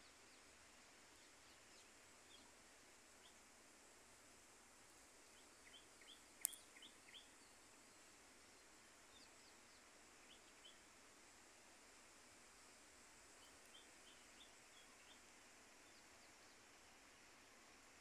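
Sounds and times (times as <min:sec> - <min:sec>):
small birds chirping: 0:04.9 - 0:10.9, 0:13.1 - 0:16.8.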